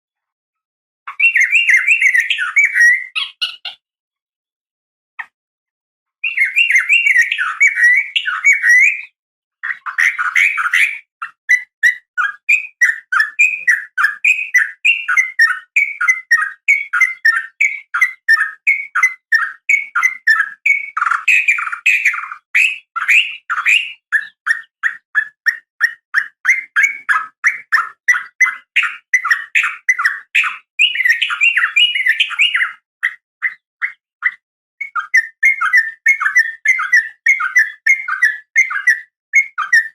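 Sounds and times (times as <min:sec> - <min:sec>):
bulbul chattering song: 0:01.1 - 0:03.8, 0:06.2 - 0:39.9.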